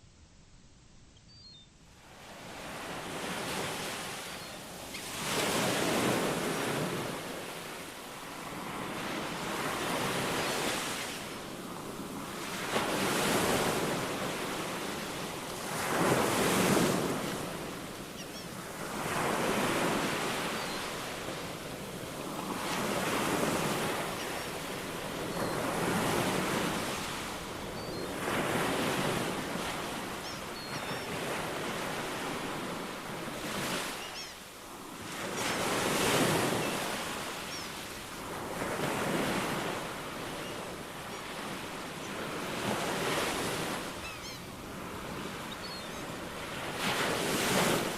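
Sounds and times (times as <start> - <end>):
faint high bird chirps: 1.2 - 1.7, 4.1 - 5.6, 18.1 - 18.6, 20.2 - 21.5, 23.6 - 25.7, 27.7 - 28.2, 30.1 - 31.3, 33.7 - 34.5, 35.3 - 37.9, 43.9 - 44.6, 45.4 - 46.2
ocean waves breaking on shore: 2.0 - 47.9.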